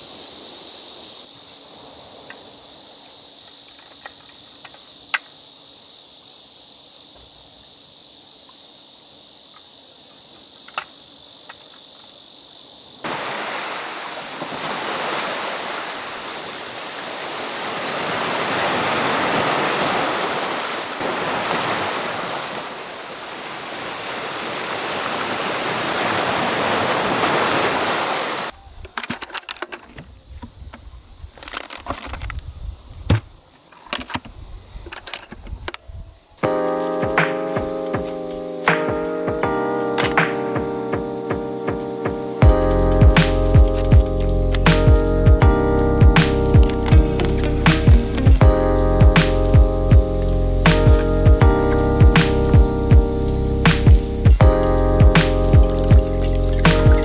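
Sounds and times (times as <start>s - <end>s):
insects chirring: 0.0s - 57.0s
sea surf washing: 13.0s - 28.6s.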